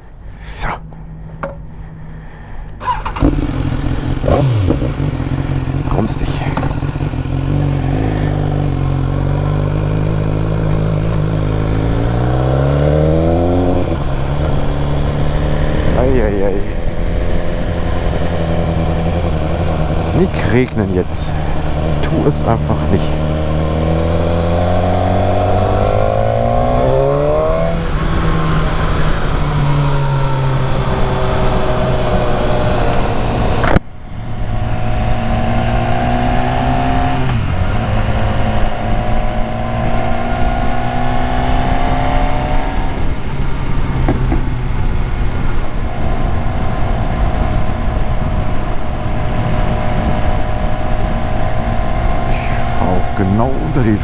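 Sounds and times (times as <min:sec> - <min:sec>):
motorcycle engine accelerating: 0:00.8 - 0:54.0
wind noise: 0:23.2 - 0:54.0.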